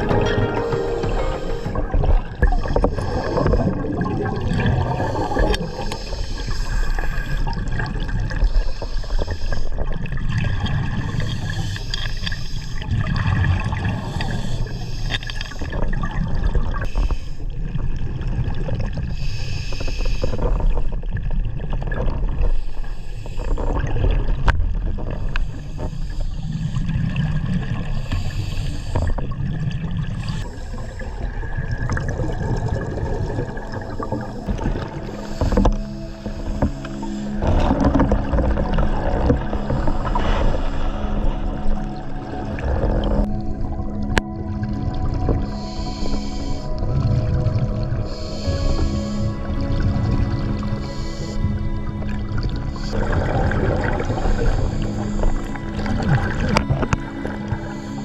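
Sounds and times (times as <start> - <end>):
underwater gurgling and bubbling: 0.0 - 58.0
low rumble: 32.6 - 45.6.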